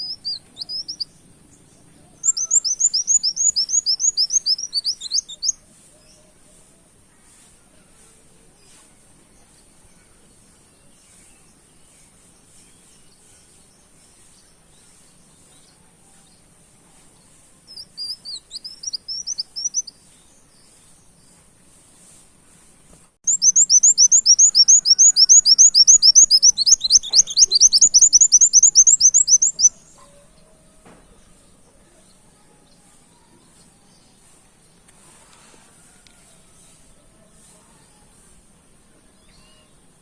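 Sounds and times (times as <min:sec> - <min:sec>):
bird chirping and trilling: 0:00.0 - 0:01.1, 0:02.2 - 0:05.6, 0:17.7 - 0:19.9, 0:23.3 - 0:30.0.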